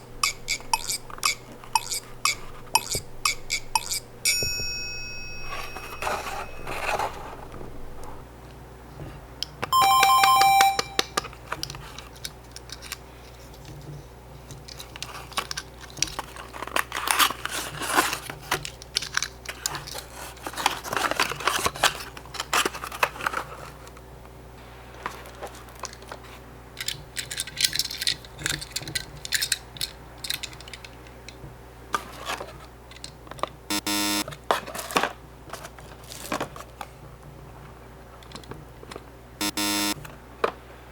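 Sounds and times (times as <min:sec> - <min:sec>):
toy cars clicking and tapping: 0:00.2 - 0:04.4, 0:14.6 - 0:23.4, 0:26.8 - 0:31.0
cardboard rustling: 0:05.4 - 0:08.2, 0:14.7 - 0:23.9
brief buzzy tone: 0:09.8 - 0:11.2, 0:33.7 - 0:34.2, 0:39.4 - 0:40.0
short bright chime: 0:09.8 - 0:11.2.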